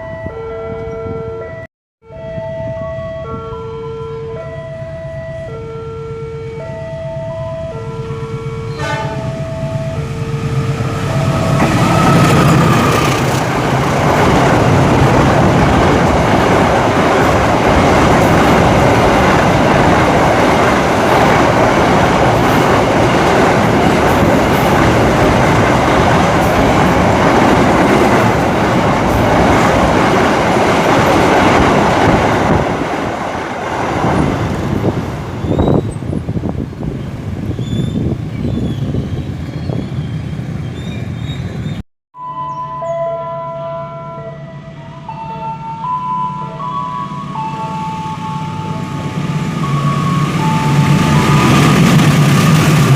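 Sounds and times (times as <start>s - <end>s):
train wheels clattering over rails: 11.5s - 35.9s.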